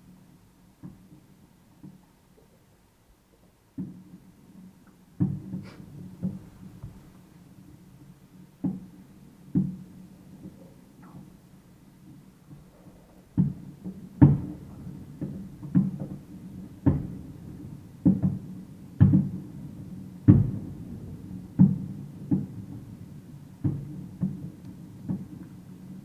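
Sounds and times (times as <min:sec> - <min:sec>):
distant fireworks booming: 0:13.3 - 0:26.0.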